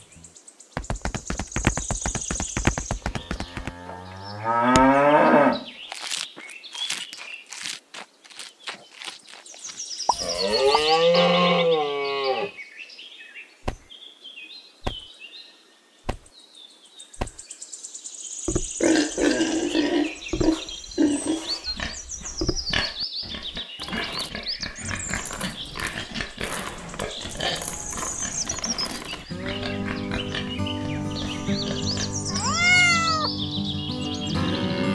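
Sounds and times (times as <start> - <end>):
pigs grunting and squealing: 10.1 - 12.5, 18.5 - 30.7.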